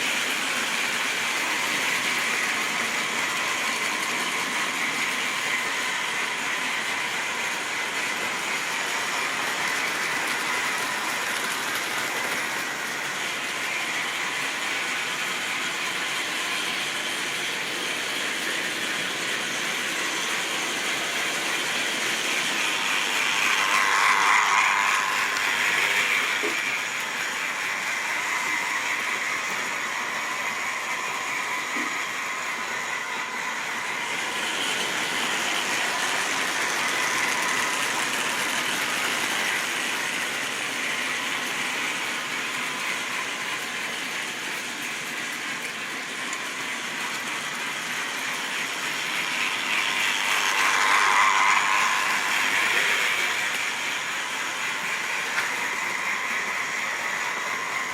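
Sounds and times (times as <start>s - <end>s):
wheels rattling over rails: 0.0s - 57.9s
electric motor whirring: 21.7s - 42.8s, 47.7s - 57.9s.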